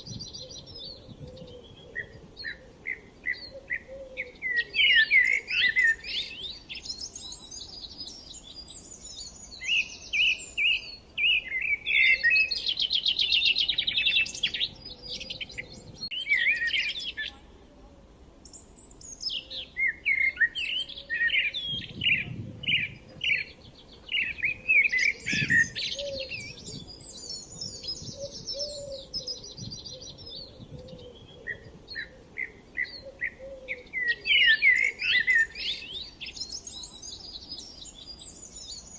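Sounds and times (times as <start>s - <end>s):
songbirds chirping and singing: 0.0s - 17.6s, 18.4s - 38.9s.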